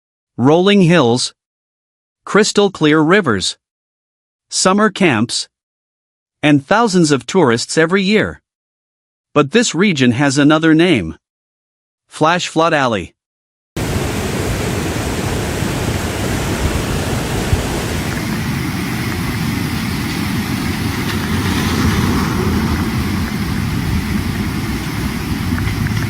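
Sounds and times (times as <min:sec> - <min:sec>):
loud low rumbling: 0:17.3 - 0:26.0.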